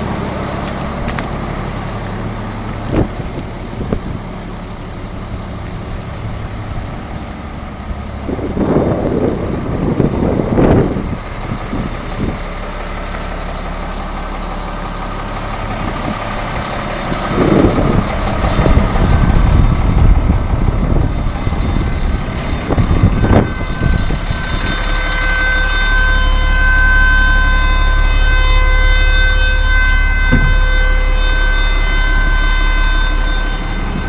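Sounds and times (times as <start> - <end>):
diesel engine running: 0.0 - 34.0
steady high-pitched tone: 17.4 - 34.0.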